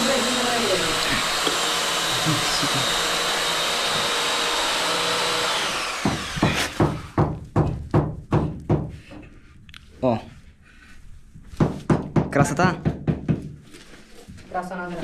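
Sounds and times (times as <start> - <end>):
power tool motor whirring: 0.0 - 7.2
evenly spaced knocks: 3.1 - 9.2.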